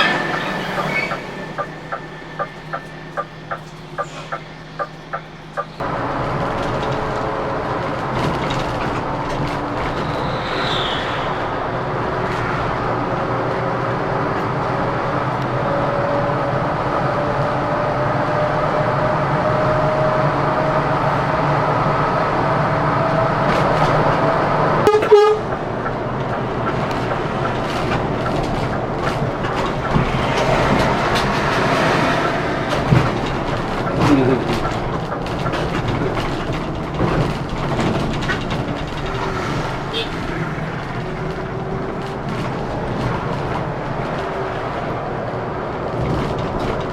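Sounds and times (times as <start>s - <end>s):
coach engine running: 0.0s - 46.9s
horn toot: 24.8s - 25.6s, 39.8s - 40.4s.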